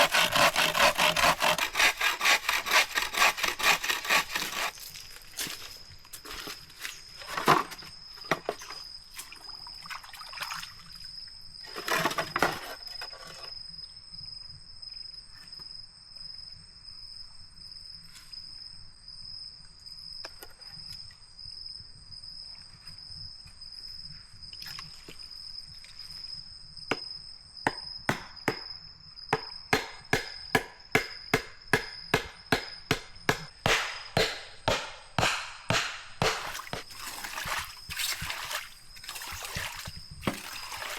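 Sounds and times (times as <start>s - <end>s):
blade chopping bamboo: 0.0s - 4.8s, 29.7s - 37.4s.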